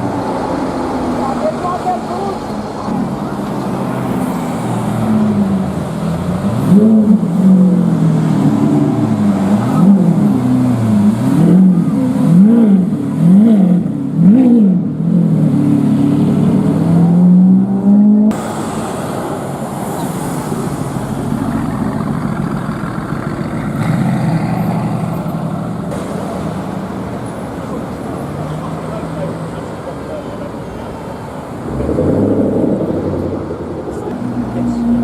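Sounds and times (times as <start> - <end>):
street traffic rumble: 0.0 - 35.0
sports car engine revving: 3.6 - 18.6, 31.6 - 35.0.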